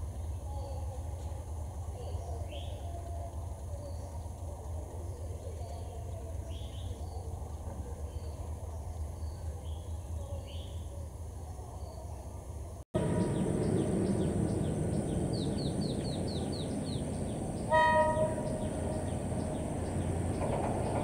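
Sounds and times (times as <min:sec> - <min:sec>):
diesel train rumble: 0:00.0 - 0:11.7, 0:12.4 - 0:21.0
steady low hum: 0:12.4 - 0:21.0
bird chirps: 0:13.0 - 0:21.0.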